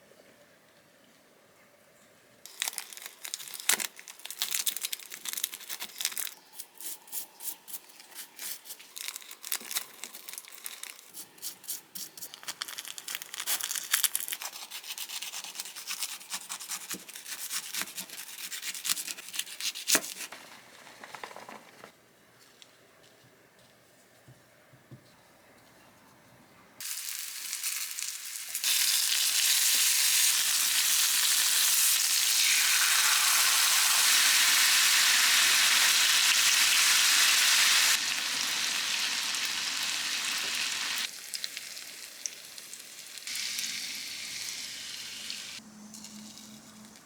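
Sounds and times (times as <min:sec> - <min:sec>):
crinkling and tearing: 0:02.5 - 0:07.0, 0:07.7 - 0:21.9.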